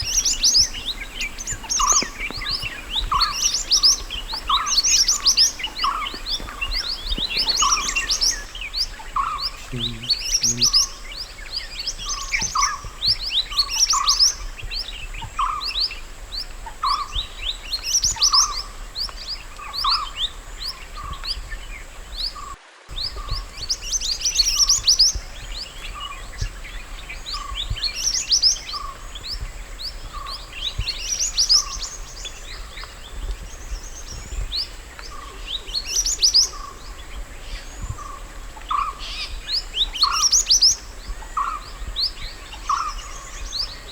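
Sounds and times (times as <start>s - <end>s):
low whistled bird notes: 0.0s - 43.9s
songbird chirping: 0.0s - 43.9s.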